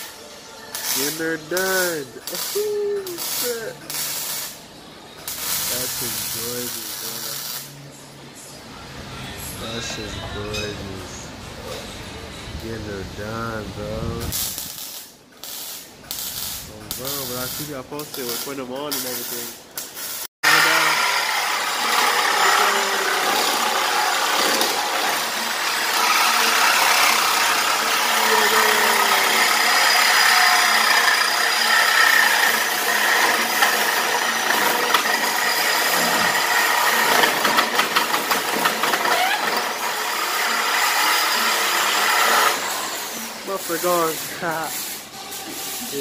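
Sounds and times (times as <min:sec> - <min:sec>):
power tool cutting metal pipe: 0:00.8 - 0:04.6, 0:05.3 - 0:07.7, 0:16.2 - 0:46.0.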